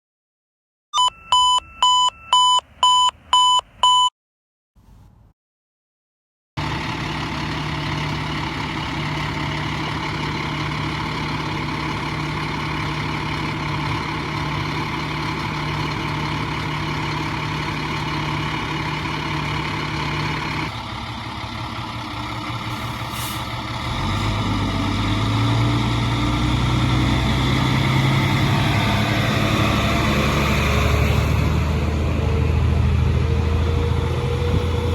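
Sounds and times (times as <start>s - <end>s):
short electronic beeps: 1.0s - 4.1s
fire truck diesel engine running: 6.6s - 34.9s.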